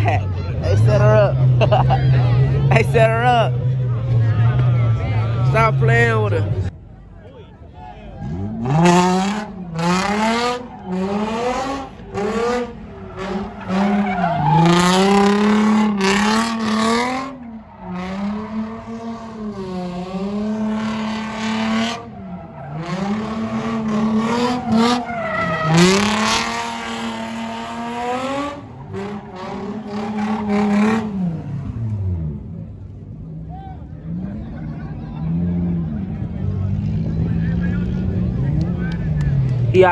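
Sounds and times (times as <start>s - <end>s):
car engine at high revs: 0.0s - 6.7s, 8.1s - 39.9s
tyres squealing and skidding: 8.1s - 32.4s.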